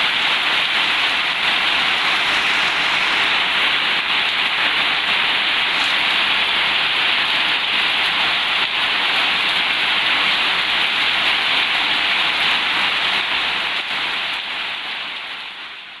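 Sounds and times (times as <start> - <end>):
heavy rain on a metal roof: 0.0 - 16.0.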